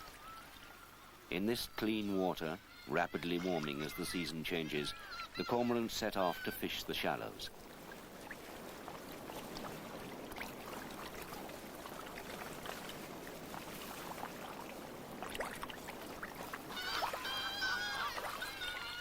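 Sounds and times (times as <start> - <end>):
small water splashes: 0.0 - 19.0
surf washing over shallows: 0.0 - 19.0
cormorants squabbling calls: 2.4 - 7.5, 15.9 - 19.0.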